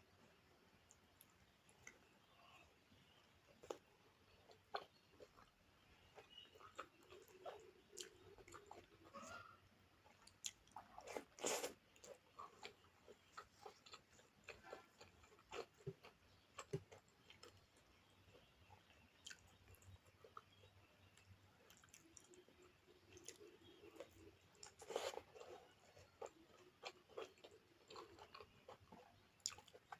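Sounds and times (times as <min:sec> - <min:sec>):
person chewing and biting food: 0:10.2 - 0:17.6, 0:23.1 - 0:29.9.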